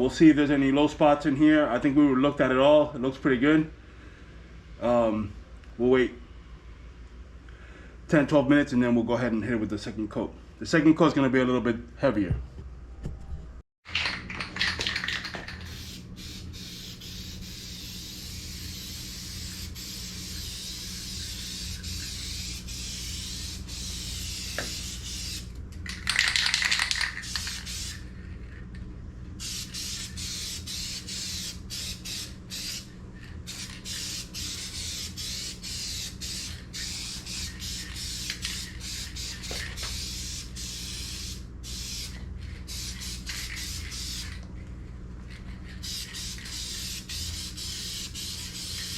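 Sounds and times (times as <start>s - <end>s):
spray paint can hissing: 14.6s - 28.0s, 29.4s - 32.9s, 33.5s - 44.4s, 45.8s - 48.9s.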